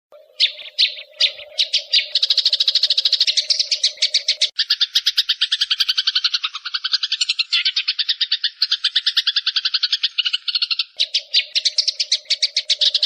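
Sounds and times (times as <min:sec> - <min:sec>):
sparrows chirping and chattering: 0:00.2 - 0:13.0.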